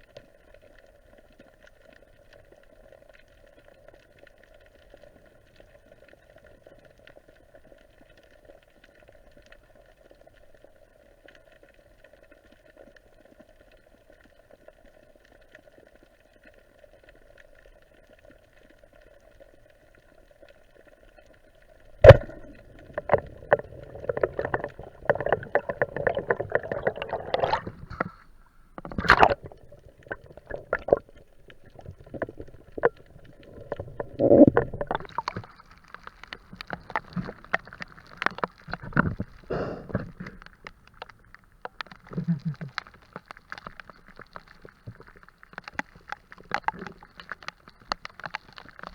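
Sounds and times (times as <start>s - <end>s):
faint underwater hum: 16.3s - 48.1s
gurgling bubbles and splashing: 20.9s - 48.9s.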